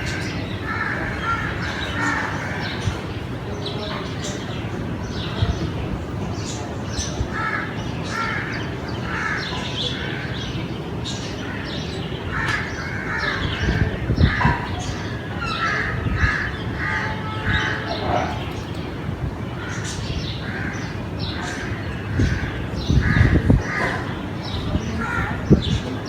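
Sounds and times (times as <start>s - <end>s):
crows cawing: 0.0s - 2.9s, 7.3s - 10.5s, 11.4s - 18.6s, 19.6s - 25.6s.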